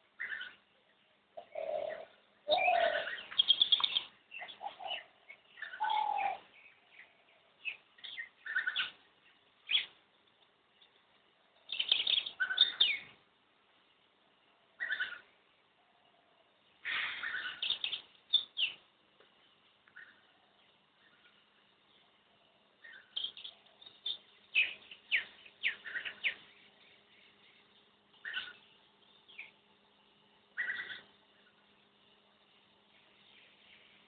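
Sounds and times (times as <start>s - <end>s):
wild birds calling: 0.0s - 34.0s.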